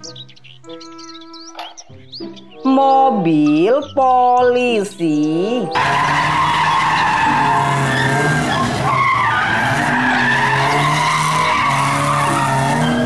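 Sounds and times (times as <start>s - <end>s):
car engines running: 5.7s - 13.0s
tyres squealing on asphalt: 5.7s - 13.0s.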